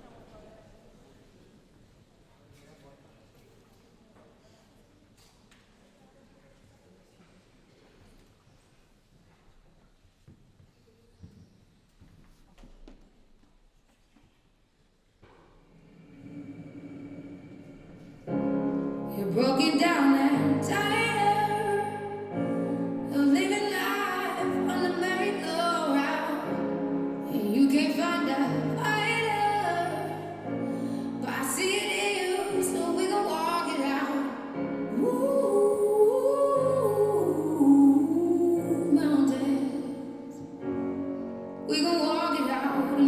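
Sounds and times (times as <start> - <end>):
piano accompaniment: 18.1 - 43.0
woman singing operatically: 19.2 - 26.6, 27.3 - 30.4, 31.2 - 40.3.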